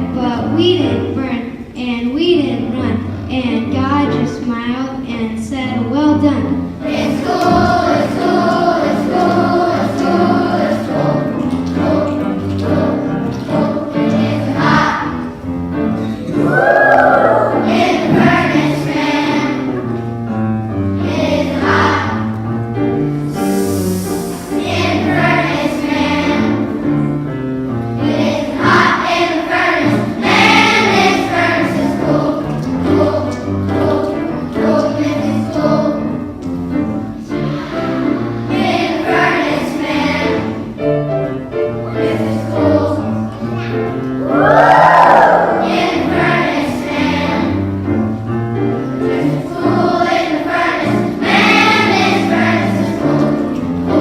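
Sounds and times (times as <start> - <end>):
instrumental accompaniment: 6.0 - 54.0
children's choir singing: 6.2 - 54.0.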